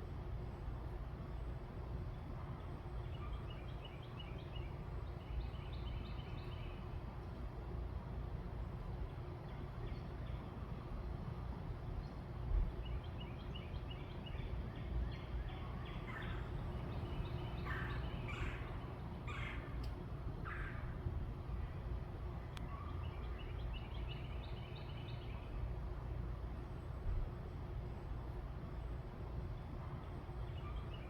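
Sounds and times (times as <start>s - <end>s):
low background rumble: 0.0s - 31.0s
birds chirping: 14.9s - 19.9s.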